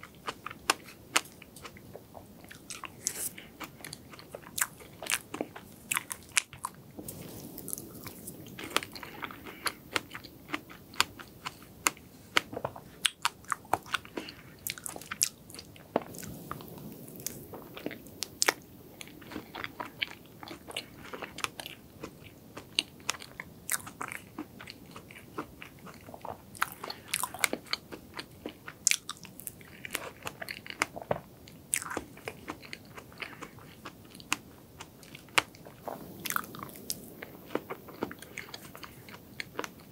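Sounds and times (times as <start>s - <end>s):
chewing cake: 0.0s - 39.9s.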